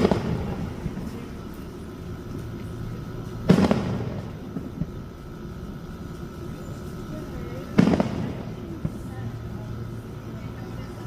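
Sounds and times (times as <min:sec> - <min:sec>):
firework shell burst: 0:00.0 - 0:01.5, 0:02.4 - 0:05.4, 0:07.0 - 0:09.3
small firework pops: 0:00.0 - 0:05.0, 0:07.6 - 0:09.3.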